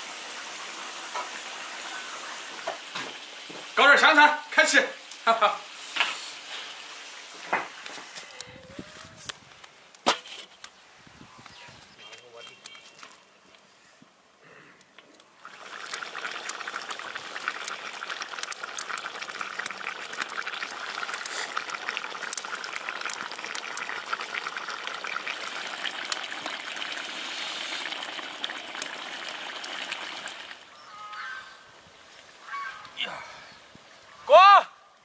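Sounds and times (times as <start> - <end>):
sausage sizzling in hot oil: 0.0 - 8.1, 15.4 - 30.7.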